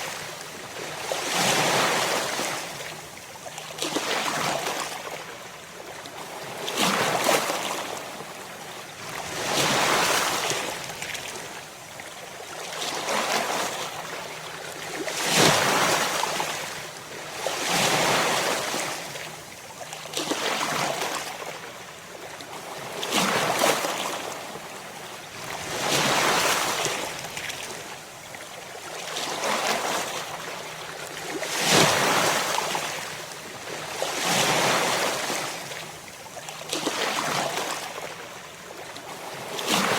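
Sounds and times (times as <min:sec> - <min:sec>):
ocean waves breaking on shore: 0:00.0 - 0:03.1, 0:06.1 - 0:11.7, 0:22.5 - 0:36.1, 0:36.7 - 0:39.9.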